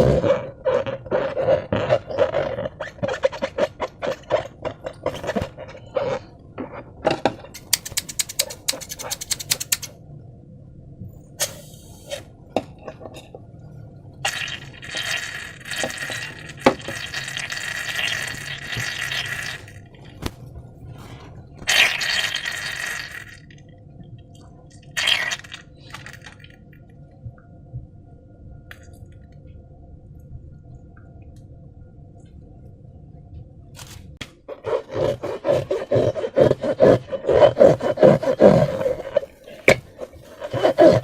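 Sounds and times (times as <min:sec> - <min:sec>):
squishy slime: 0:00.0 - 0:06.8, 0:14.2 - 0:23.5, 0:24.8 - 0:26.6
low hum: 0:00.0 - 0:16.9, 0:18.2 - 0:41.0
sharp clicks: 0:07.6 - 0:09.9.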